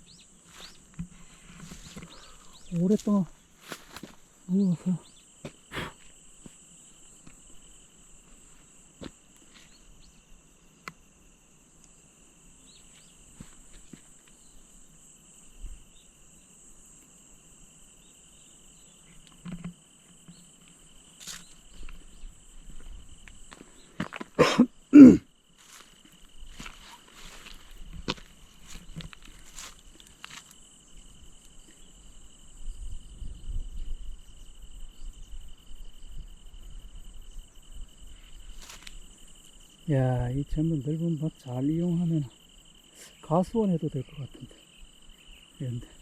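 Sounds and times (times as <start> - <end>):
insects trilling: 0.0 - 46.0
loud short coughing sounds: 5.7 - 6.0, 24.3 - 25.3.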